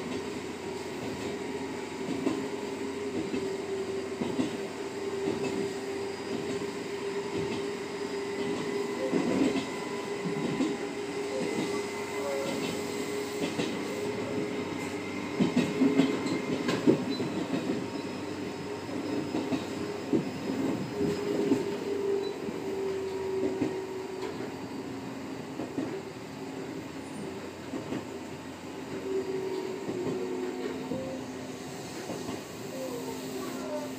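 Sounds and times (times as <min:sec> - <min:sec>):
electric train hum: 0:00.0 - 0:33.9.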